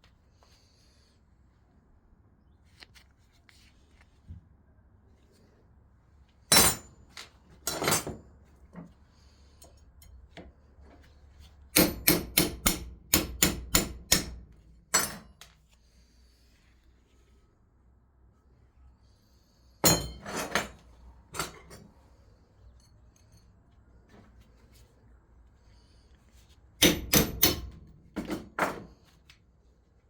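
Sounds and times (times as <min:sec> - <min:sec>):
hammer striking metal: 0:11.8 - 0:15.3, 0:19.8 - 0:20.5, 0:26.8 - 0:27.8.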